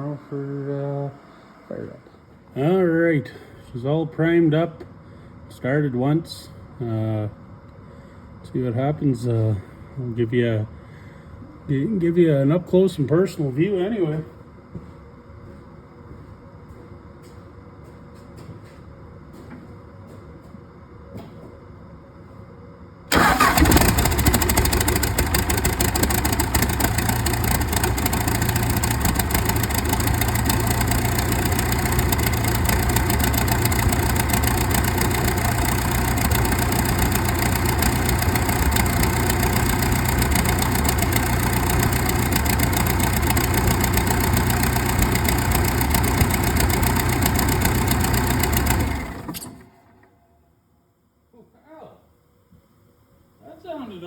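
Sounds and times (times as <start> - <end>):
diesel engine idling: 23.1 - 49.6.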